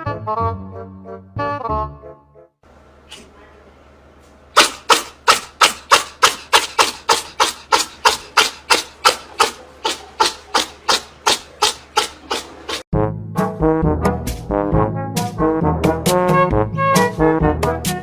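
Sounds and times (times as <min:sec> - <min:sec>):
rhythmic rasping scraping: 0:04.6 - 0:12.9.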